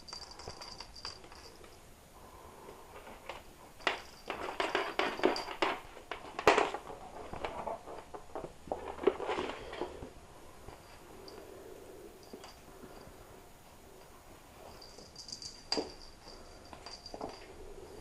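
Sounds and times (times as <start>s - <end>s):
kittens knocking and scuffling: 3.0s - 10.1s.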